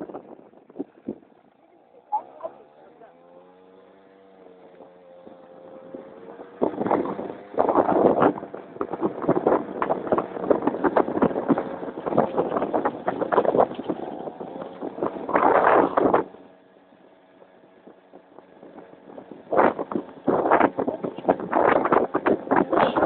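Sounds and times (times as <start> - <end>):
wind buffeting microphone: 0.0 - 23.0
scooter engine: 0.3 - 23.0.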